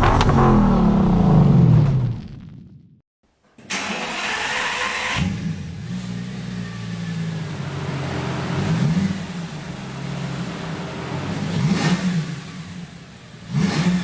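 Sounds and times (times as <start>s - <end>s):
engine rev blip: 0.0s - 2.6s
engine start-up flare: 0.0s - 2.7s, 3.7s - 5.5s.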